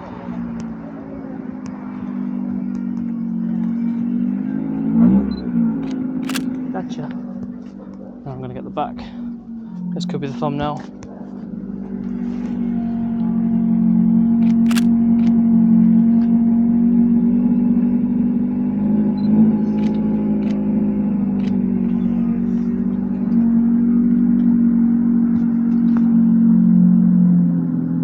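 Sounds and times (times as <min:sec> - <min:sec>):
short sharp clicks: 0:06.2 - 0:06.5, 0:14.7 - 0:14.9.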